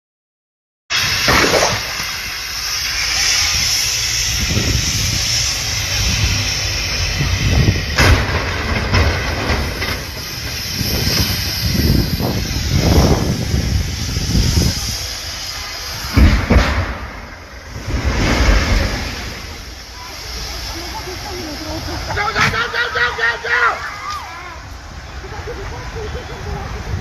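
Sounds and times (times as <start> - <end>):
low traffic rumble: 1.0 - 27.0
rushing highway traffic noise: 1.2 - 27.0.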